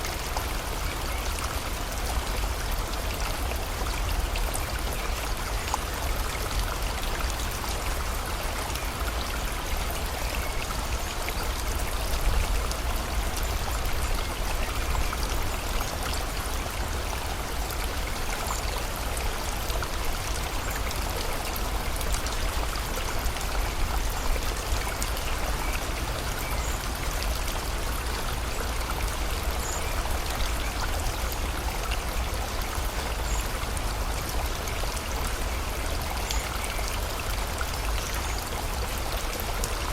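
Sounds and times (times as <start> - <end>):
river flowing: 0.0 - 39.9
steady rain falling: 0.0 - 39.9.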